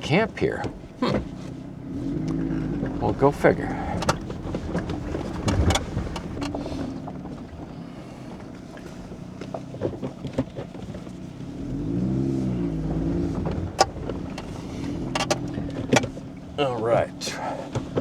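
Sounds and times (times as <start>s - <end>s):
off-road vehicle engine: 0.0s - 18.0s
clicks and knocks: 3.8s - 6.7s, 13.5s - 16.2s.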